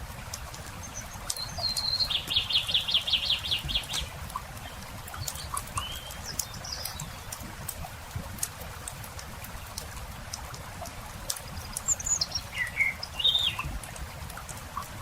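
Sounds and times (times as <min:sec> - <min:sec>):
campfire crackling and popping: 0:00.0 - 0:15.0
songbird singing: 0:00.6 - 0:07.5, 0:11.5 - 0:13.7.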